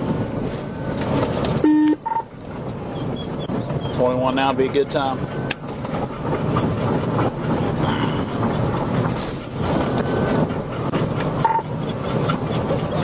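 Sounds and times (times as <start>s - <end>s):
car engine: 0.0s - 13.0s
road and wind noise: 0.0s - 13.0s
short beep: 1.6s - 2.3s, 11.4s - 11.6s.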